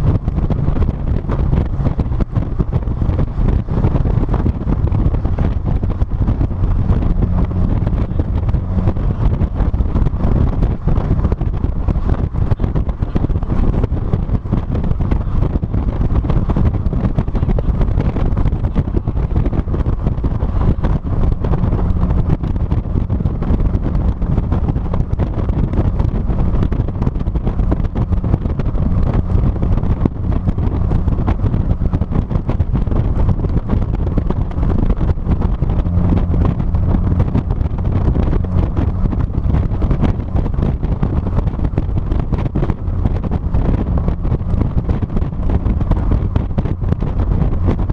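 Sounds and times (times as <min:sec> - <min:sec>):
low car hum: 0:00.0 - 0:47.9
wind buffeting microphone: 0:00.0 - 0:47.9.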